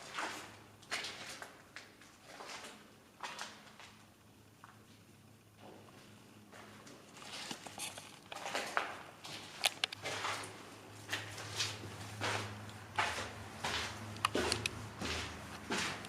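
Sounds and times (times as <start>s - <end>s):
footsteps on hard floor: 11.1s - 16.0s.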